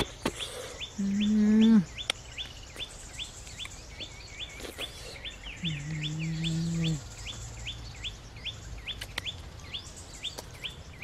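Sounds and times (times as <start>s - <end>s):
bird calling: 0.0s - 11.0s
woman humming closed-mouth: 5.6s - 7.0s.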